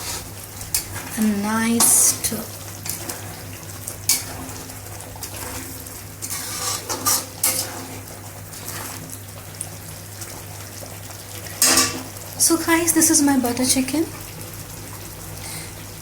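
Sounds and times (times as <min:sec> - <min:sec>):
spoon stirring gravy in pan: 0:02.7 - 0:09.2
spoon scraping and knocking pan: 0:06.2 - 0:08.0, 0:11.6 - 0:12.1.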